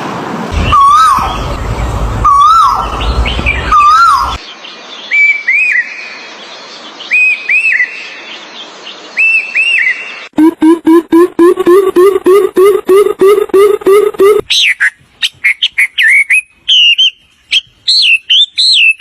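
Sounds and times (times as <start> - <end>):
whistled bird call: 0.6 - 1.5, 2.2 - 4.4, 7.1 - 8.1, 9.2 - 19.0.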